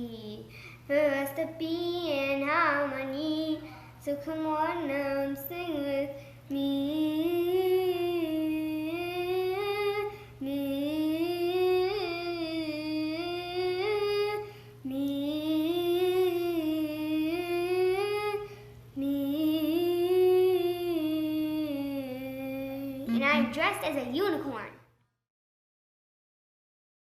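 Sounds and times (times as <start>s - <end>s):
child humming: 19.0s - 23.1s.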